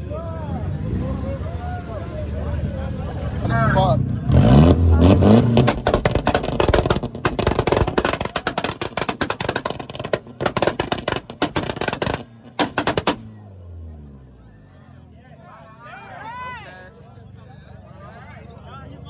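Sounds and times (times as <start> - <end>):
car engine revving: 0.4 - 14.4
exhaust pops and bangs: 3.4 - 13.5.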